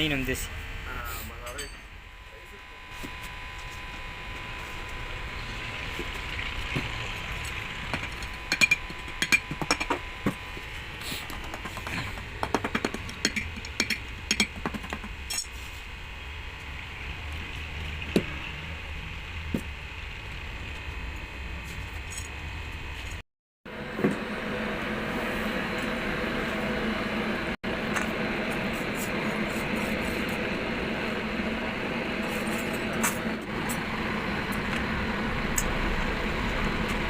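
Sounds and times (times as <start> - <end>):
workshop hum: 0.0 - 37.0
tools clinking and tapping: 7.9 - 10.0, 12.6 - 15.5.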